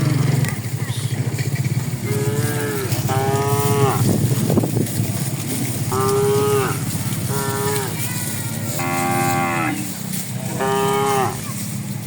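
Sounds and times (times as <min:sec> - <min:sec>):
cattle mooing: 0:02.0 - 0:04.4, 0:05.2 - 0:11.6.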